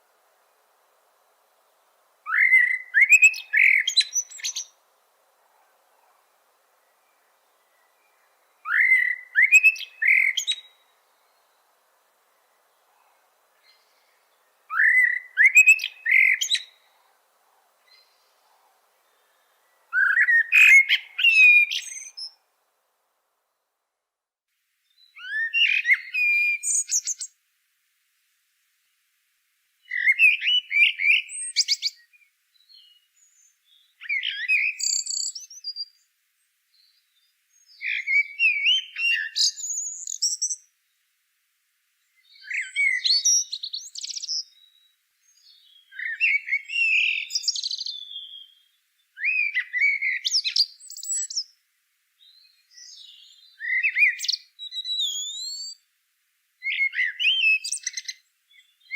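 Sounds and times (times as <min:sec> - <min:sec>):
songbird warbling: 0:00.1 - 0:22.4, 0:32.8 - 0:36.0, 0:42.2 - 0:51.5, 0:52.7 - 0:55.8, 0:56.6 - 0:58.9.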